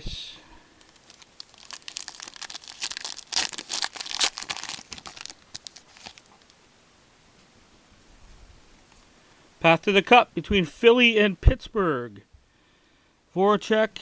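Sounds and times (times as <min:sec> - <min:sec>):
foil wrapper tearing and crinkling: 0:00.8 - 0:06.6.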